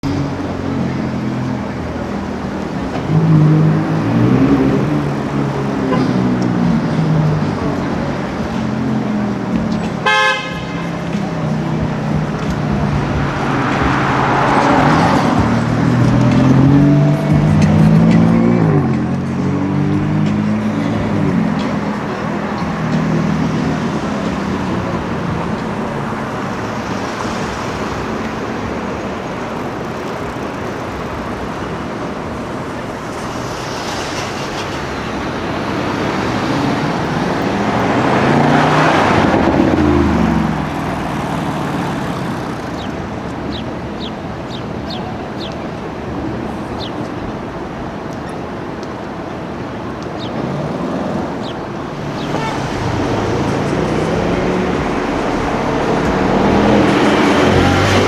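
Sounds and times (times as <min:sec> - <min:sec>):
loud car passing: 0:00.0 - 0:58.0
street traffic: 0:00.0 - 0:58.0
car engine revving past: 0:11.2 - 0:30.2, 0:33.0 - 0:43.2, 0:50.4 - 0:58.0.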